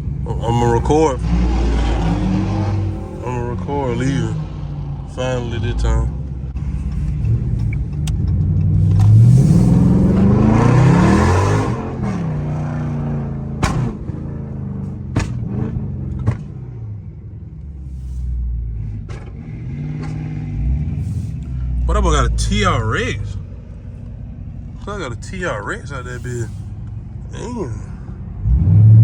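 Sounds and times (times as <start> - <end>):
car engine accelerating hard: 0.0 - 29.0
sharp cracks: 13.6 - 14.2.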